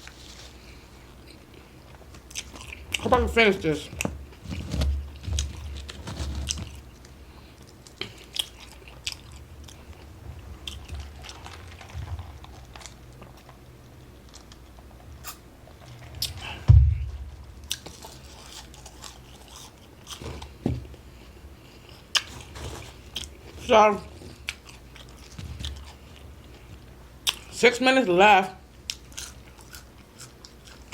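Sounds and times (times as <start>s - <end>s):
person chewing food: 0.0s - 3.1s, 3.8s - 16.6s, 17.3s - 27.5s, 28.8s - 30.9s
low steady hum: 0.0s - 30.9s
low thump: 16.6s - 17.3s.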